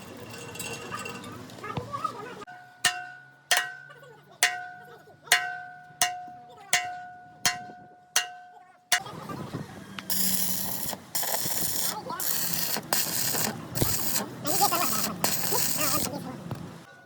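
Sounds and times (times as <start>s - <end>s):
hammer striking steel: 2.5s - 9.1s.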